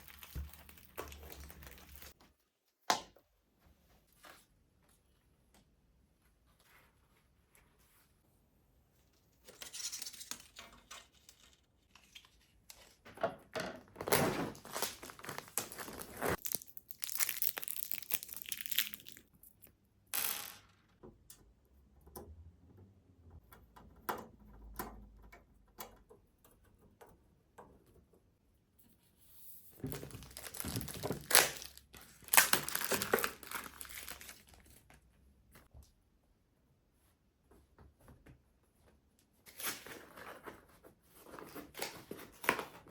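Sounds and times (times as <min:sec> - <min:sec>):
packaging crinkling and tearing: 0:00.0 - 0:02.2, 0:14.0 - 0:19.3, 0:29.9 - 0:34.9.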